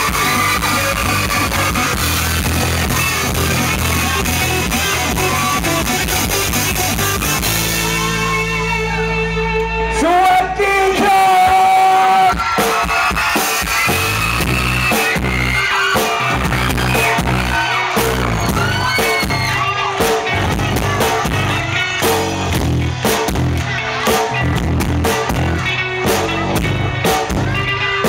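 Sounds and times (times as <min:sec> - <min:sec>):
live rock band with singing: 0:00.0 - 0:28.0.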